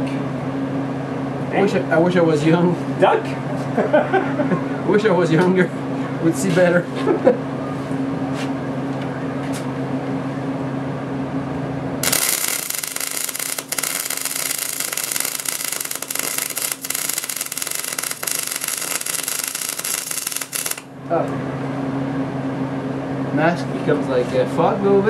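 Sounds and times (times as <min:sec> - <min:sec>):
steady electrical hum: 0:00.0 - 0:25.0
welding arc crackling: 0:12.0 - 0:20.9.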